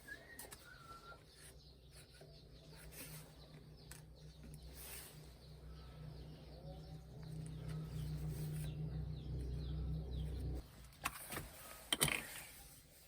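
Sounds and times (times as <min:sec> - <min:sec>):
small birds chirping: 0:00.0 - 0:13.0
low rumble: 0:05.7 - 0:10.6.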